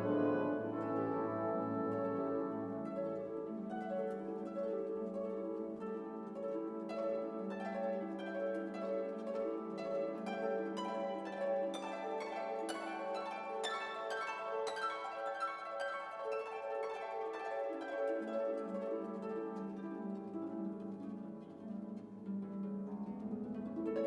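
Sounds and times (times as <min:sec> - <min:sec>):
sustained low strings: 0:00.0 - 0:02.7
pizzicato strings: 0:00.0 - 0:03.2
plucked harp: 0:00.0 - 0:24.0.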